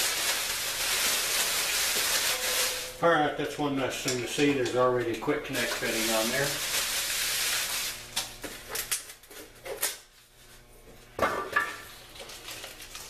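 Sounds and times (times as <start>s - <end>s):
plastic packing rustling: 0.0s - 3.6s, 4.3s - 9.8s, 11.9s - 13.0s.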